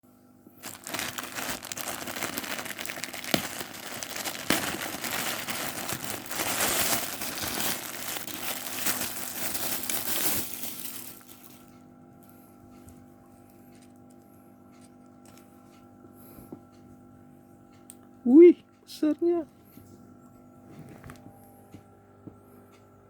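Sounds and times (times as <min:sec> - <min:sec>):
packaging crinkling: 0:00.6 - 0:11.7.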